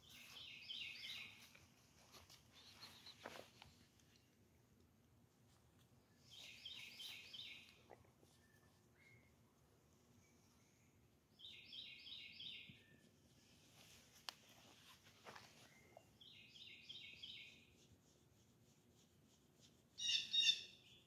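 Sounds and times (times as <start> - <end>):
songbird singing: 0.0 - 4.0, 6.0 - 9.6, 10.2 - 13.2, 15.3 - 17.7, 20.0 - 21.0.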